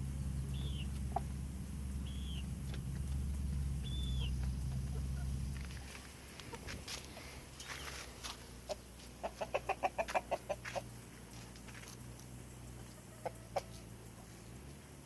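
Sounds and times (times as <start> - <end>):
bird calling: 0.3 - 10.9.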